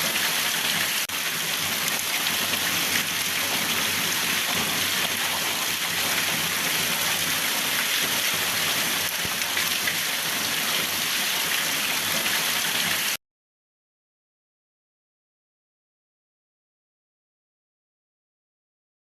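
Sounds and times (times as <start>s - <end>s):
steady rain hiss: 0.0s - 13.1s.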